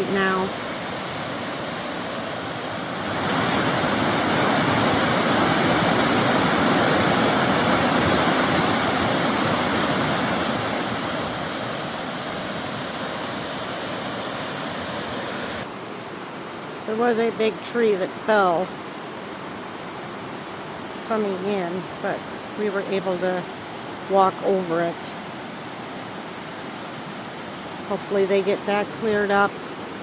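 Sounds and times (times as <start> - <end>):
waterfall rushing: 0.0 - 15.7.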